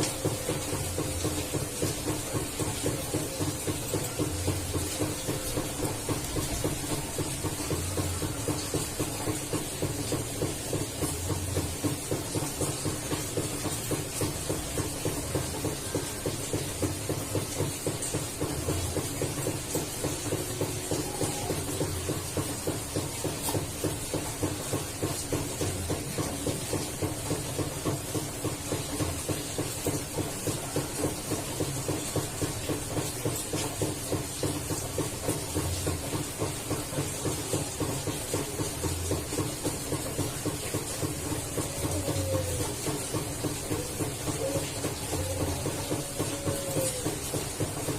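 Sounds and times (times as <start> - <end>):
steady rapid pulsing: 0.0 - 47.9
dove cooing: 41.1 - 47.5.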